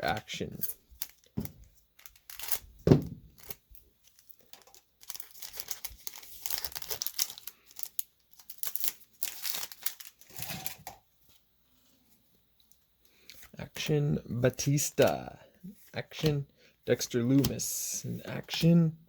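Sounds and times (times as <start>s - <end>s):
wrapper tearing and crinkling: 2.0s - 2.7s, 3.3s - 11.0s.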